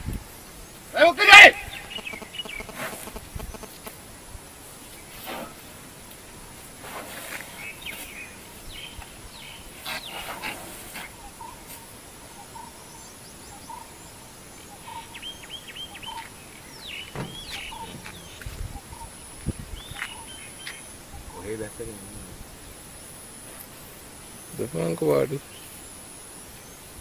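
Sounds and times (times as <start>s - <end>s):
birds chirping and calling: 0.0s - 4.0s, 7.3s - 22.3s.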